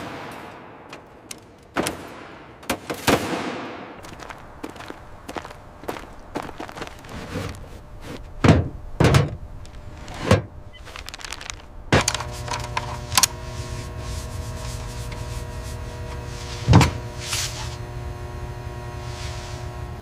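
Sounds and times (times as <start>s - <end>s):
steady hum: 3.9s - 20.0s
heavy thunks: 6.0s - 10.6s, 16.0s - 17.7s.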